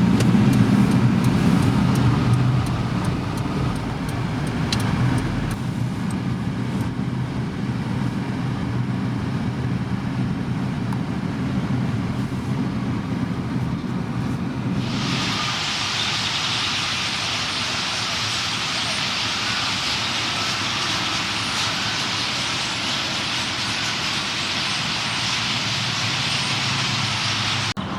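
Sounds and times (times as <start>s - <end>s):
faint sharp ticks: 0.0s - 6.2s
road traffic rumble: 0.0s - 27.9s.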